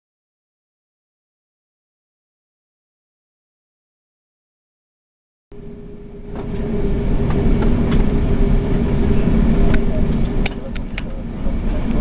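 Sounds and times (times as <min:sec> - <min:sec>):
airliner cabin low rumble: 0:05.5 - 0:12.0
steady hum: 0:05.5 - 0:12.0.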